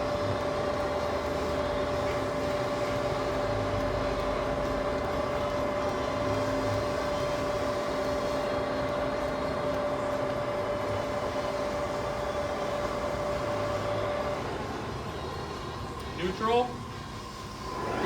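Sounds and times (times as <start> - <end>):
lathe running: 0.0 - 18.0
lathe whine: 0.0 - 18.0.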